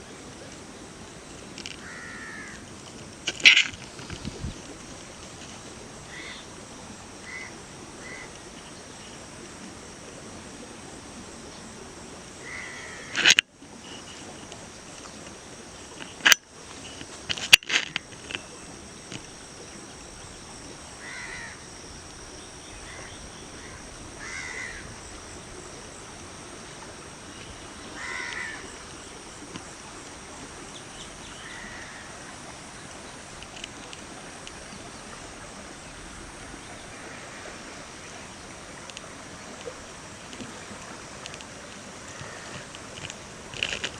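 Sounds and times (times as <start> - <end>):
faint steady hiss: 0.0 - 43.9
birds calling: 1.6 - 9.2, 12.4 - 29.7, 30.4 - 35.2, 42.1 - 43.9.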